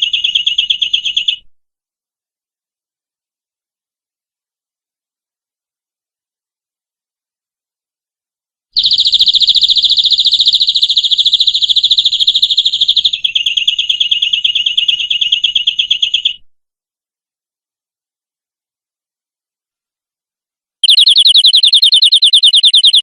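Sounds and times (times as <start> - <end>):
canary trilling: 20.8 - 23.0.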